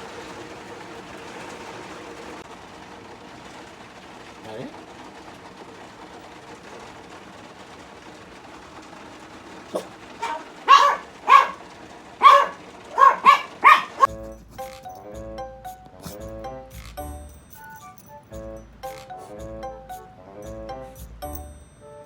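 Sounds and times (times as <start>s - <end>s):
heavy rain hiss: 0.0s - 21.5s
dog barking sharply: 9.7s - 14.1s
background music: 14.1s - 22.0s.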